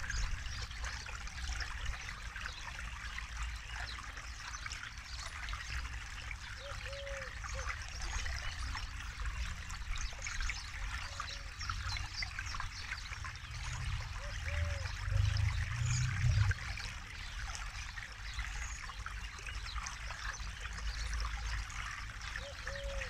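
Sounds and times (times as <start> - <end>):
river trickling and splashing: 0.0 - 23.0
low rumble: 13.5 - 16.8.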